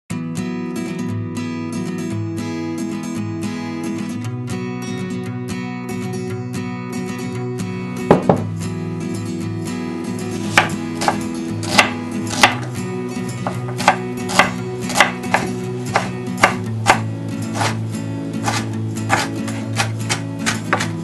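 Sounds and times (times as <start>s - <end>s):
background music: 0.1s - 21.0s
knife chopping on wooden board: 8.1s - 8.5s, 10.5s - 12.7s, 13.4s - 17.8s, 18.4s - 21.0s.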